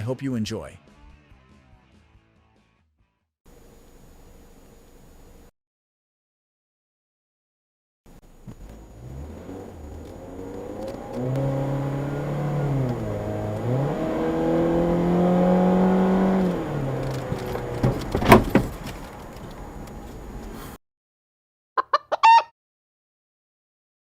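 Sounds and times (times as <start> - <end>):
car engine accelerating: 8.2 - 20.6.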